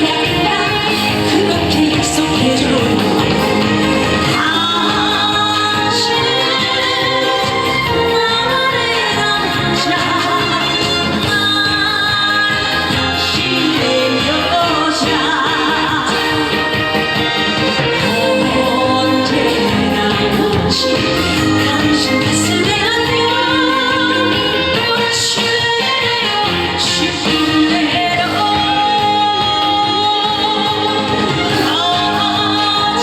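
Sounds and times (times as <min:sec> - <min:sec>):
instrumental accompaniment: 0:00.0 - 0:33.0
woman singing with vibrato: 0:00.0 - 0:33.0.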